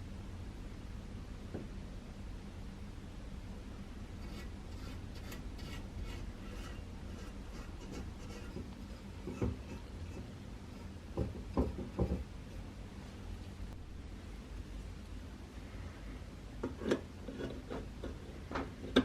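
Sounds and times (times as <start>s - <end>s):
steady low hum: 0.0s - 19.0s
light scratching and ticking: 4.2s - 11.1s.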